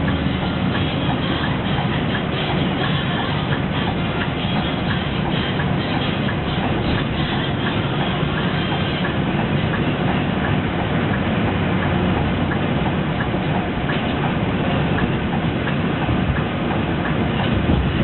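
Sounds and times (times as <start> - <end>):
bus body rattles and clicks: 0.0 - 18.0
bus engine and road noise: 0.0 - 18.0.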